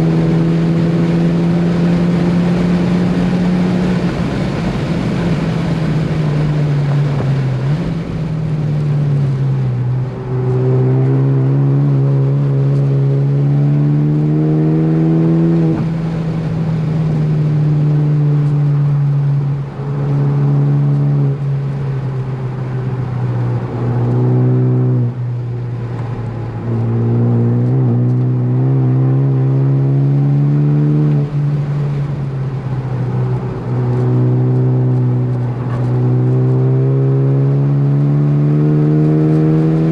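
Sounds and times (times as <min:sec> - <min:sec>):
car engine revving hard: 0:10.1 - 0:19.2, 0:22.5 - 0:25.2, 0:26.5 - 0:39.9.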